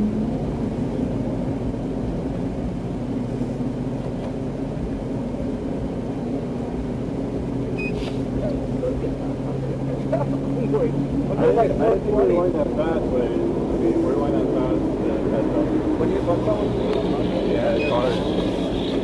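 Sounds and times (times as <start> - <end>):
car engine and road noise: 0.0 - 19.0
short electronic beep: 7.8 - 8.0.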